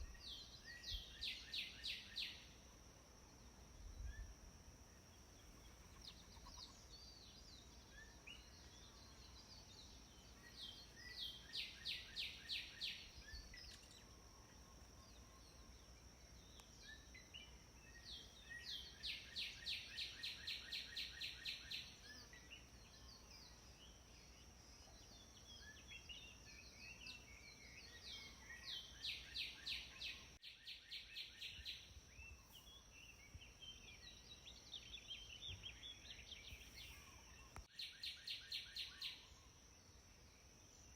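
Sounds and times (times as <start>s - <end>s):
songbird fast trill: 5.6s - 15.8s.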